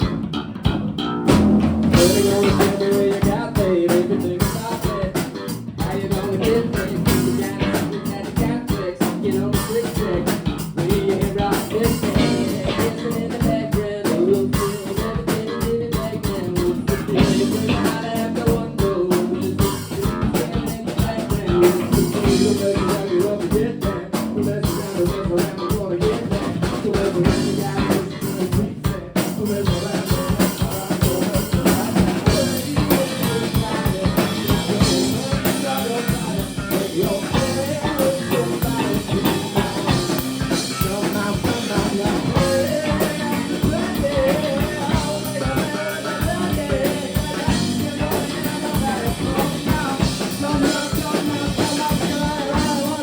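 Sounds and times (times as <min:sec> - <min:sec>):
drum kit: 0:00.0 - 0:53.0
electric guitar: 0:00.0 - 0:53.0
person singing: 0:01.9 - 0:53.0.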